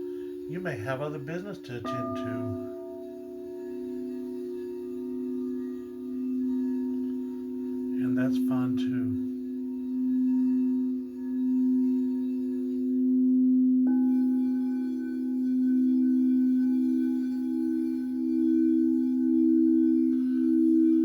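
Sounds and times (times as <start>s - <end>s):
singing bowls ringing: 0.0s - 21.0s
singing bowl struck: 1.0s - 10.9s.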